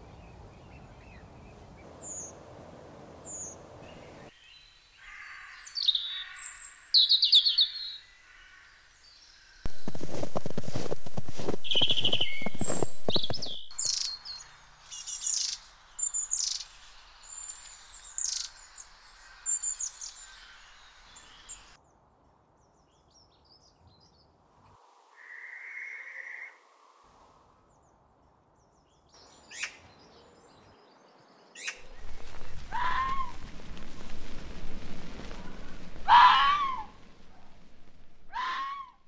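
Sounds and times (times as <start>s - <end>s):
birds chirping: 0.0s - 2.4s, 3.2s - 21.8s, 27.7s - 38.8s
harsh magpie calls: 5.0s - 8.6s.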